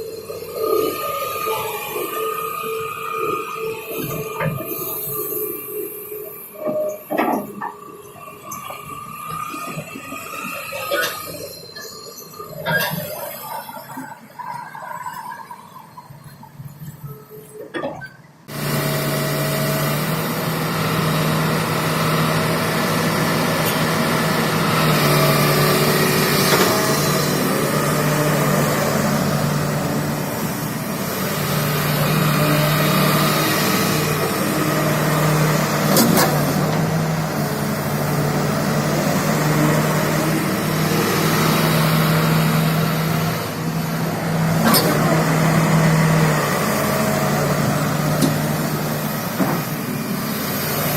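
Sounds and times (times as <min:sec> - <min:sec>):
excavator diesel engine running: 0:00.0 - 0:15.0, 0:15.6 - 0:50.9.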